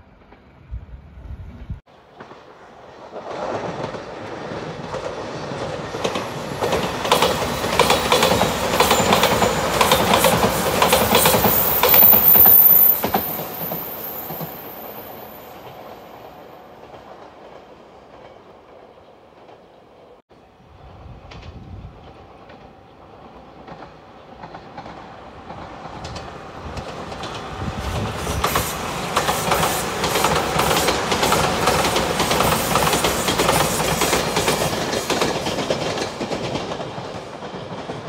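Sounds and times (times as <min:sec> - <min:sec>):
electric train rumble: 0:00.0 - 0:18.1, 0:20.6 - 0:38.0
high-pitched wheel squeal: 0:11.1 - 0:15.3.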